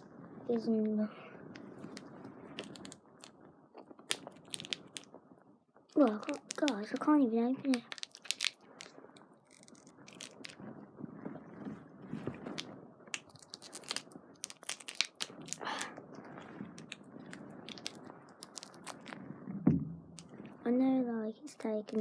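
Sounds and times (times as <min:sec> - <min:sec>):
plastic packaging crinkling: 0:01.6 - 0:05.2, 0:05.9 - 0:10.6, 0:12.3 - 0:19.2, 0:21.5 - 0:22.0.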